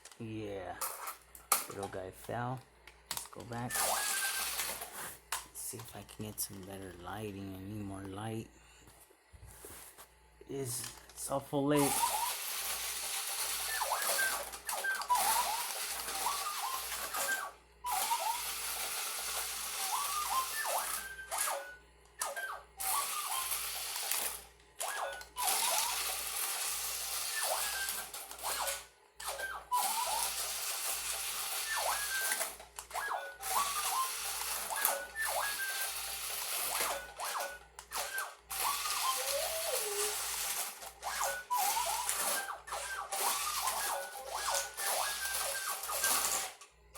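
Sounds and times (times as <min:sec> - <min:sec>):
toy electric motors whirring: 0:00.0 - 0:07.9, 0:10.6 - 0:46.9
electronic whistles: 0:03.6 - 0:04.7, 0:11.8 - 0:12.6, 0:13.4 - 0:26.2, 0:27.2 - 0:46.5.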